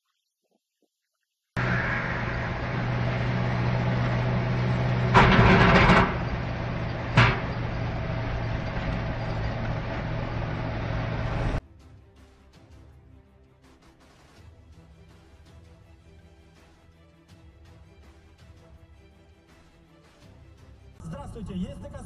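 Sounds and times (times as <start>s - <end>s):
loud rough noise: 1.6s - 11.6s
vehicle engine running: 1.6s - 11.6s
sharp bang: 7.1s - 7.8s.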